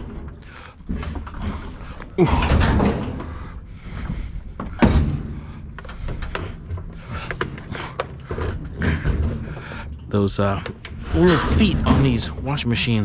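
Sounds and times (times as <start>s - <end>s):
knocks and scrapes: 10.6s - 13.0s.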